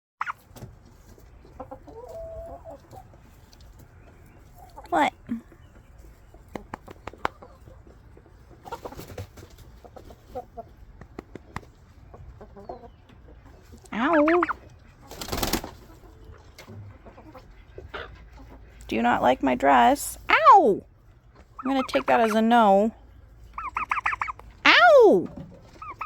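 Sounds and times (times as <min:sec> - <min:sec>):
turkey warbling call: 0:14.1 - 0:14.6, 0:23.6 - 0:26.0.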